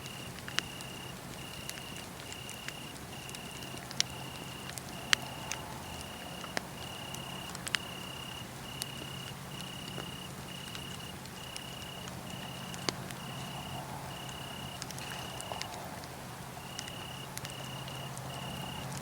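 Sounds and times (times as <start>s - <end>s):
cricket chirping: 0.0s - 19.0s
wood fire crackling and popping: 0.0s - 19.0s.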